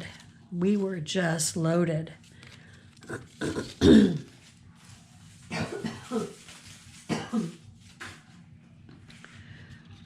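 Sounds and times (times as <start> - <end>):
woman clearing throat: 3.0 - 4.3, 5.5 - 6.4, 7.1 - 7.6
woman coughing: 3.1 - 4.3, 5.5 - 6.4, 7.1 - 7.6.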